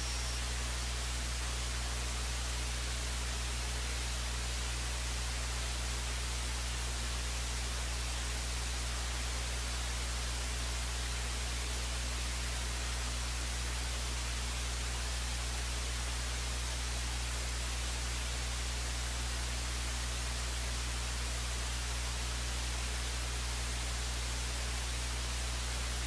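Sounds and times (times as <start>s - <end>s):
even hiss: 0.0s - 2.1s
low electrical hum: 0.0s - 26.0s.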